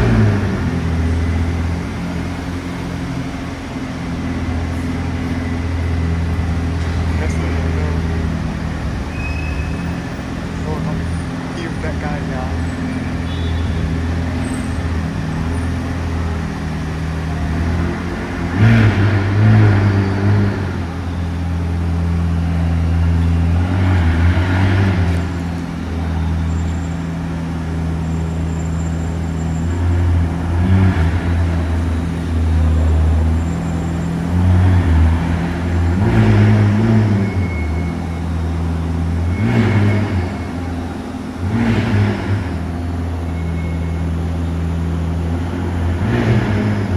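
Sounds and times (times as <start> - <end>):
car engine idling and revving: 0.0 - 46.9.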